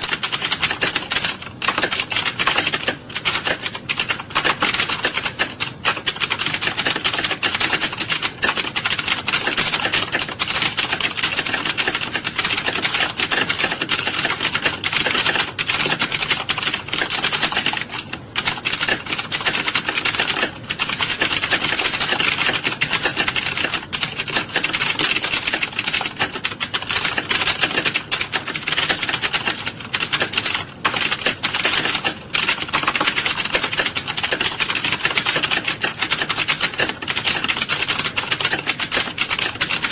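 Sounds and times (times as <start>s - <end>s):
many keyboards clattering: 0.0s - 39.9s.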